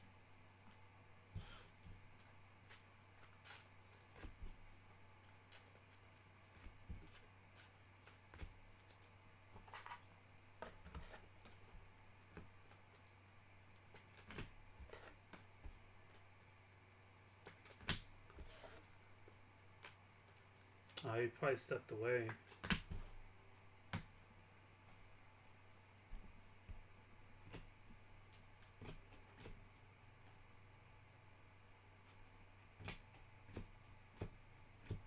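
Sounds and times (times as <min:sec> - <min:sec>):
low electrical hum: 0:00.0 - 0:35.0
cards being handled: 0:17.0 - 0:19.0.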